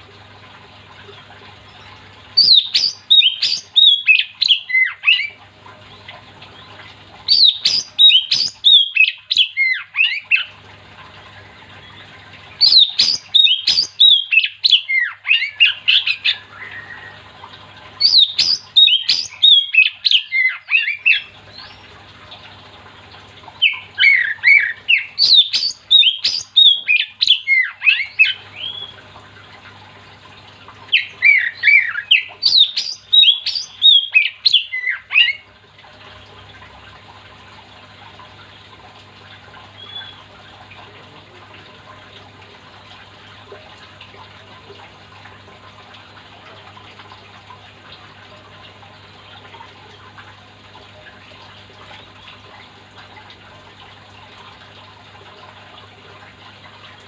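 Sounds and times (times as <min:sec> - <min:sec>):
bird singing whistled notes: 0:39.8 - 0:40.2.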